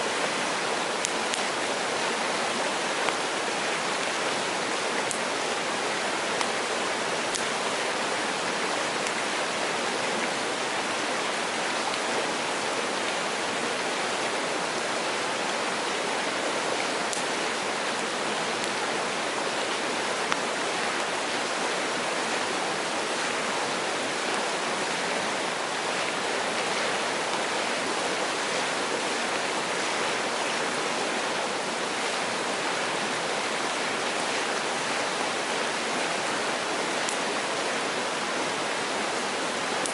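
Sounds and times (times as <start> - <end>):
stream running over rocks: 0.0 - 39.9
faint sharp clicks: 1.0 - 1.5, 17.1 - 17.3, 37.0 - 37.2.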